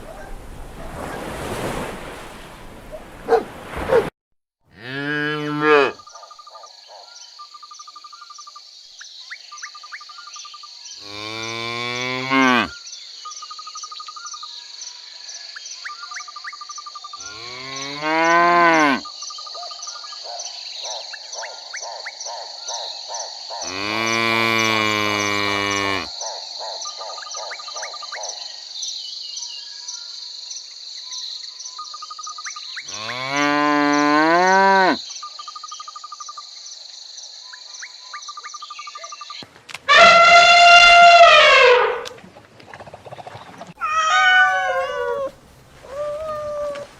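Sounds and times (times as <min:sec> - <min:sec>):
cow mooing: 0:04.7 - 0:06.0, 0:11.0 - 0:12.7, 0:17.3 - 0:19.0, 0:23.7 - 0:26.1, 0:32.9 - 0:35.0
crickets chirring: 0:06.0 - 0:39.4.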